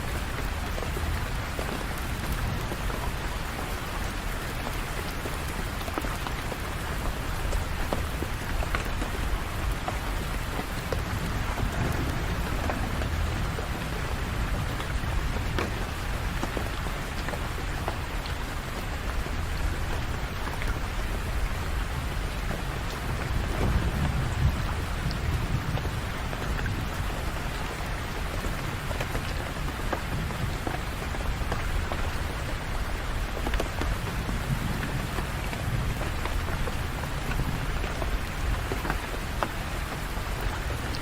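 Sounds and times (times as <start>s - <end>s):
rain on hard surfaces: 0.0s - 41.0s
low rumble: 10.9s - 15.4s.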